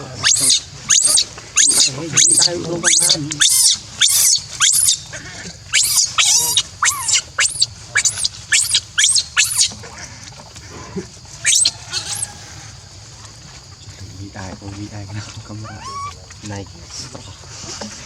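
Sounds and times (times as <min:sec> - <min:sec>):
baby monkey squealing: 0:00.0 - 0:05.1, 0:05.7 - 0:09.8, 0:11.4 - 0:12.4, 0:15.6 - 0:16.3.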